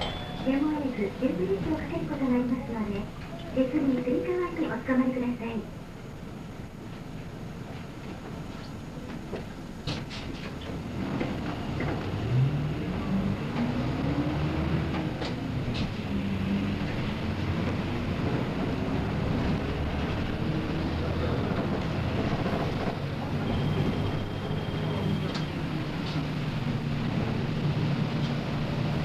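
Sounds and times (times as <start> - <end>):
bus diesel engine: 0.0 - 29.0
high beep: 23.4 - 25.5.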